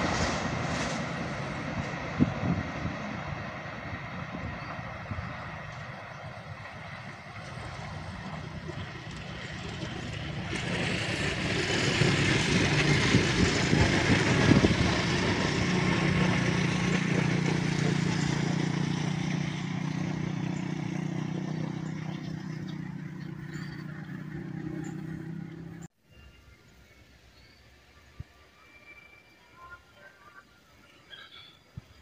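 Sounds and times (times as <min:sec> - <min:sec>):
diesel train passing: 0:00.0 - 0:32.0
wheels rushing on rails: 0:00.0 - 0:32.0.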